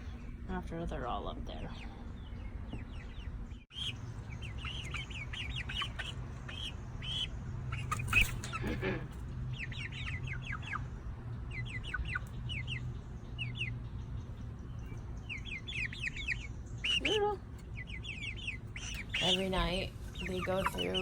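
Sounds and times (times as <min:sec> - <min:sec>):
chicks peeping: 0:00.0 - 0:21.0
low steady hum: 0:00.0 - 0:21.0
chick squawk: 0:03.7 - 0:10.9, 0:15.3 - 0:21.0.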